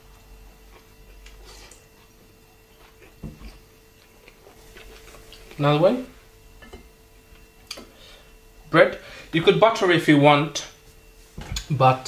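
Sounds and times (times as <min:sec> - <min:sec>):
person chewing food: 0:00.0 - 0:05.6.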